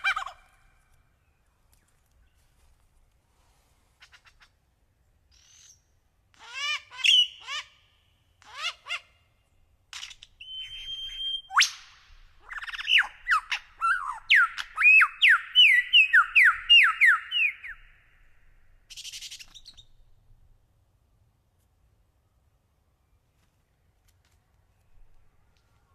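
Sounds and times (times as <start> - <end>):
songbird chirps and whistles: 10.0 - 18.3.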